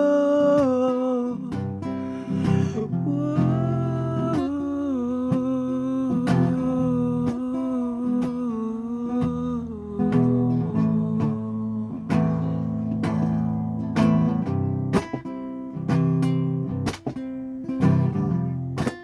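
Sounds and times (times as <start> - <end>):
held wordless melody line: 0.0 - 14.8
strummed acoustic guitar: 0.0 - 19.0.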